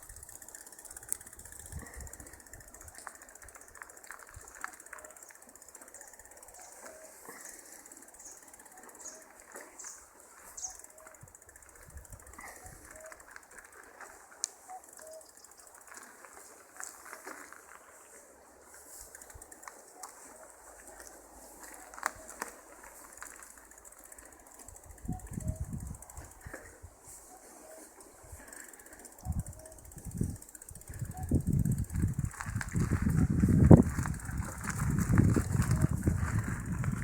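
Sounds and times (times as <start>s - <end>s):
small clicks and rustles: 0.0s - 37.0s
bird chirps: 5.9s - 11.2s, 14.6s - 15.8s.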